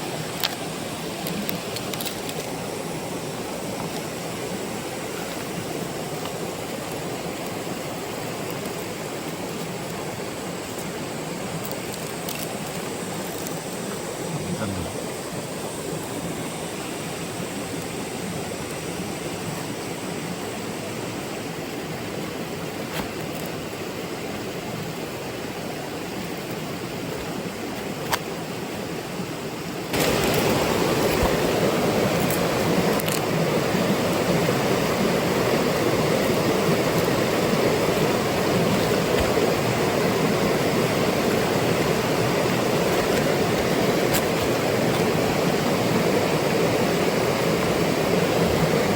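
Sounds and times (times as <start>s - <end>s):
water rushing over rocks: 0.0s - 48.9s.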